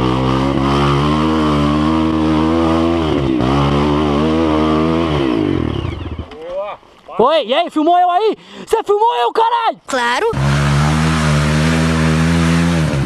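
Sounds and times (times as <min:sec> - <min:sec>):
dirt bike engine running: 0:00.0 - 0:06.4, 0:10.3 - 0:13.0.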